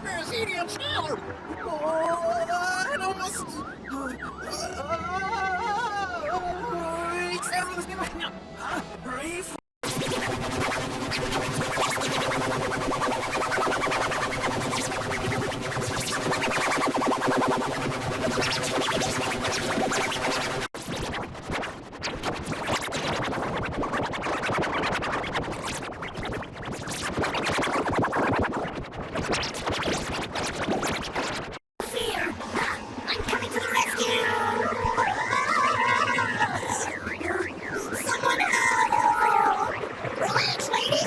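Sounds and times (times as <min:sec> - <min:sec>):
distorted processed music: 0:32.2 - 0:41.0.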